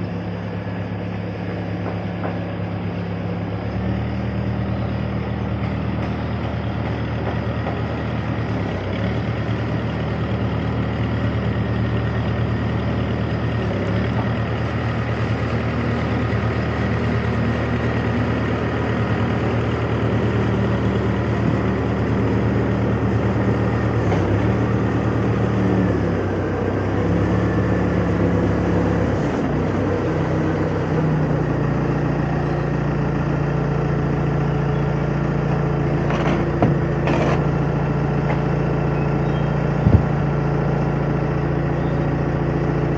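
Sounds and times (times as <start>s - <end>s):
heavy engine running: 0.0s - 42.9s.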